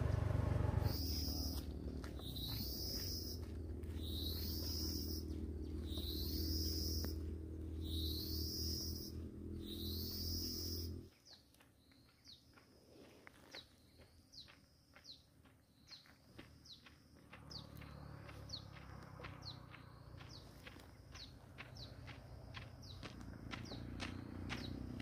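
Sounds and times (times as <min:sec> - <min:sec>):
steady low drone: 0:00.0 - 0:11.0
bird chirping: 0:00.0 - 0:12.6, 0:13.5 - 0:22.2, 0:22.8 - 0:24.9.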